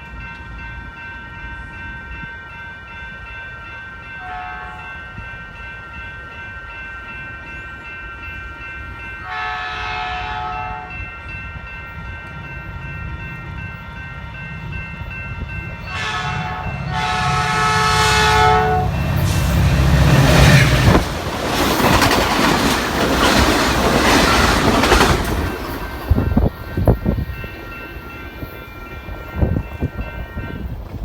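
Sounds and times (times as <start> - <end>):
locomotive horn chord: 4.2 - 4.9, 9.2 - 11.0, 15.8 - 21.0
train rushing past: 9.2 - 31.0
wheel clacks on rails: 20.2 - 26.1.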